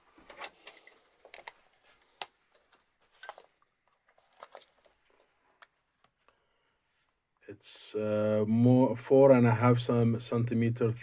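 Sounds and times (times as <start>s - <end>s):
light clicks and small knocks: 0.2s - 6.4s.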